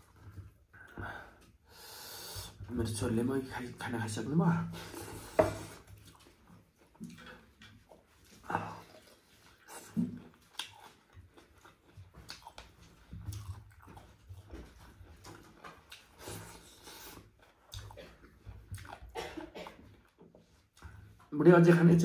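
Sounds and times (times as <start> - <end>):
person chewing: 4.8 - 21.0
mouth smacks and clicks: 9.7 - 13.9.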